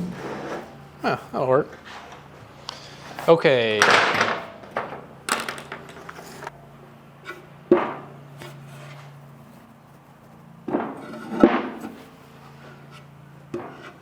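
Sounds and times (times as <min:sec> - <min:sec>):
metal parts knocking and clanking: 0:03.8 - 0:06.5.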